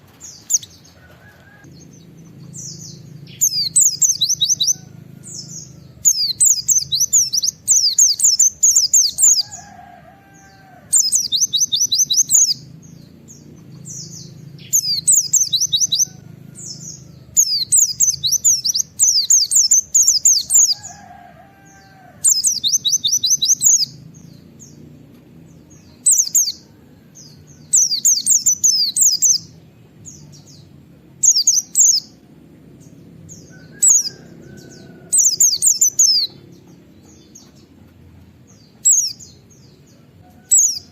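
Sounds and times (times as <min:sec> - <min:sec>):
bird singing high sweeping notes: 0:01.6 - 0:09.7, 0:10.4 - 0:20.9.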